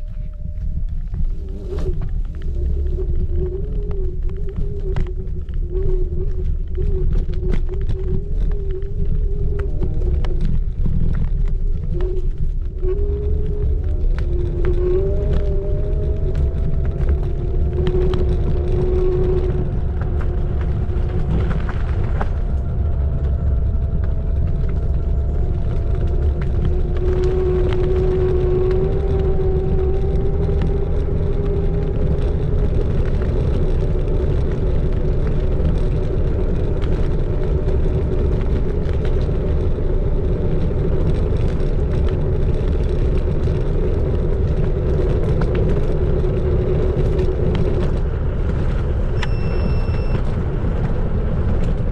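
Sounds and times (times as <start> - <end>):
low rumble: 0.0 - 51.9.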